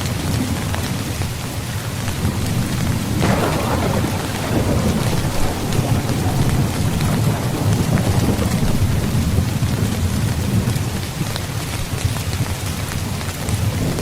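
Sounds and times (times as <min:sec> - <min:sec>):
heavy rain: 0:00.0 - 0:14.0
low thunder rumbling: 0:02.0 - 0:12.1
thunder clap: 0:02.1 - 0:11.9.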